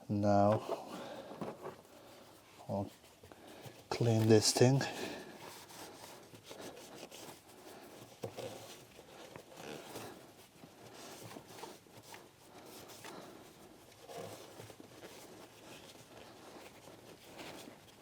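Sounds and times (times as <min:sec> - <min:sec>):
cloth rubbing engine part: 0:00.3 - 0:18.0.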